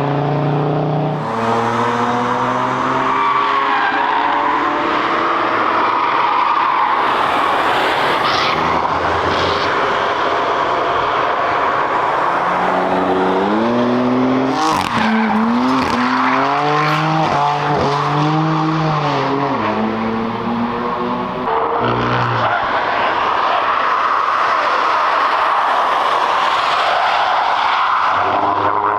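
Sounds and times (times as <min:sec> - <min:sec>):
race car engine accelerating: 0:00.0 - 0:26.6.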